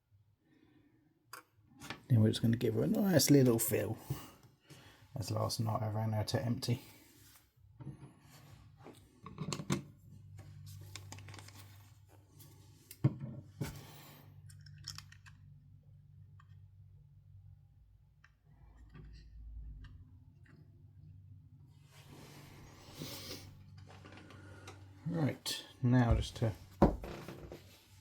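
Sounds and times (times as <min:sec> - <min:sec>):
plastic parts clicking and tapping: 0:14.5 - 0:15.6.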